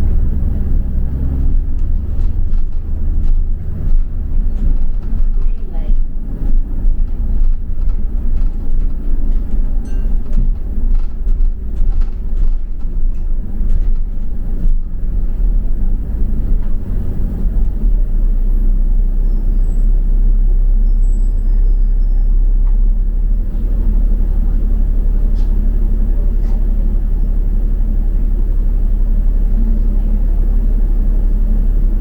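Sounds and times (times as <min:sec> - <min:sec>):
light rattles and knocks: 0:00.0 - 0:18.0
bus engine and road rumble: 0:00.0 - 0:32.0.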